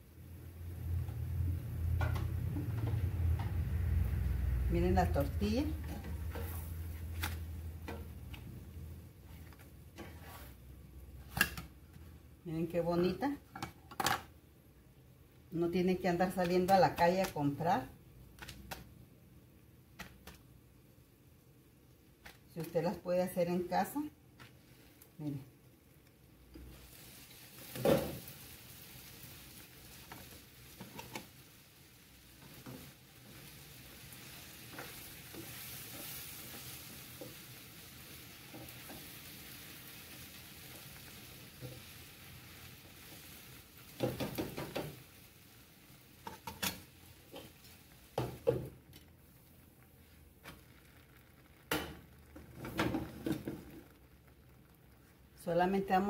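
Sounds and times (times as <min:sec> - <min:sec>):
food sizzling in a frying pan: 0:00.0 - 0:09.4, 0:26.3 - 0:56.0.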